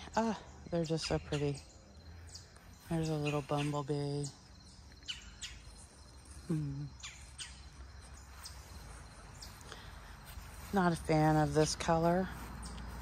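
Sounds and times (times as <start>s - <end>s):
small birds chirping: 0.0s - 13.0s
person murmuring: 6.4s - 7.0s.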